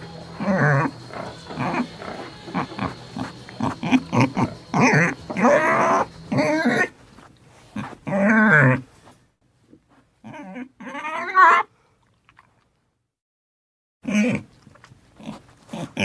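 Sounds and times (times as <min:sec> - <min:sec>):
piglets squealing and grunting: 0:00.0 - 0:06.9, 0:10.2 - 0:11.6.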